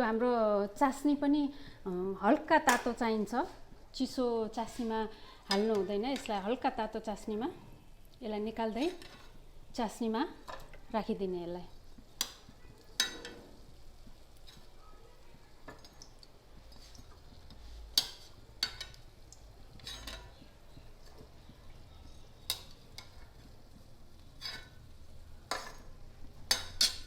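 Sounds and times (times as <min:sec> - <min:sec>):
faint frying sizzle: 0:00.0 - 0:27.0
metal spoon clinking on a pan: 0:12.2 - 0:13.5, 0:15.6 - 0:17.1, 0:18.0 - 0:19.1, 0:19.7 - 0:20.4, 0:22.4 - 0:23.5, 0:24.4 - 0:24.8, 0:25.4 - 0:27.0.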